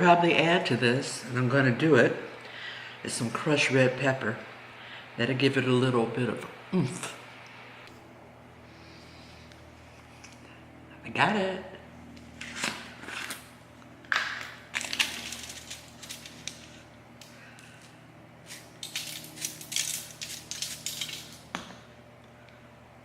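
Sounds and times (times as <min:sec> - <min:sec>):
pepper flakes crinkling and rattling: 0:14.2 - 0:21.5.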